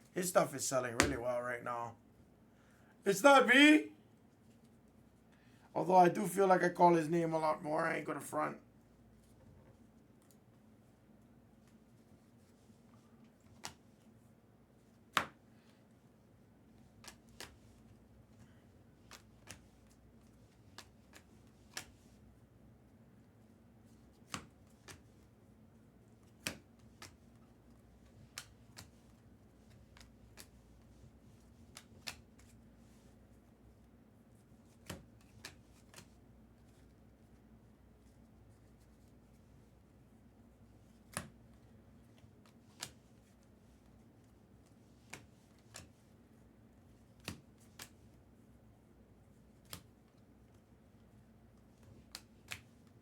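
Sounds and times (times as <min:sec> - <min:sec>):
faint steady hum: 0:00.0 - 0:53.0
cards clicking and snapping: 0:13.4 - 0:13.8, 0:16.9 - 0:22.2, 0:24.2 - 0:25.2, 0:26.2 - 0:32.6, 0:34.6 - 0:36.9, 0:40.9 - 0:41.6, 0:42.2 - 0:43.4, 0:44.9 - 0:46.0, 0:47.0 - 0:48.1, 0:49.6 - 0:50.0, 0:51.7 - 0:52.9
trading cards snapping: 0:20.6 - 0:22.0.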